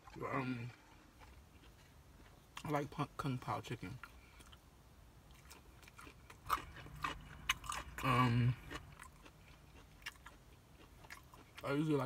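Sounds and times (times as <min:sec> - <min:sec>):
chewing broccoli: 0:00.0 - 0:12.0
crunchy bites: 0:05.3 - 0:11.8.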